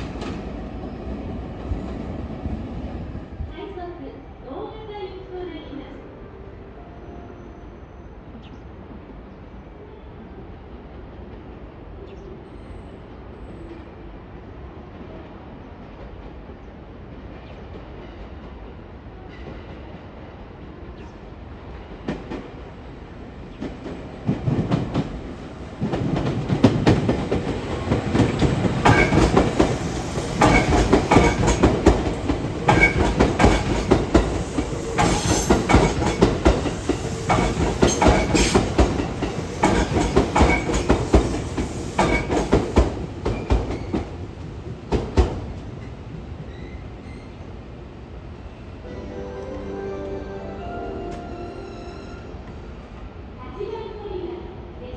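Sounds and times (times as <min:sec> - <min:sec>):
train wheels clicking on rails: 0:00.0 - 0:00.7, 0:23.5 - 0:46.8.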